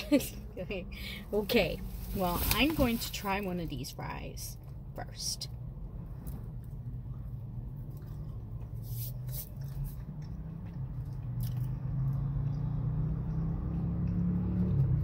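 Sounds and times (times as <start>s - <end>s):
low vehicle hum: 0.0s - 15.0s
crunchy chewing: 6.2s - 15.0s.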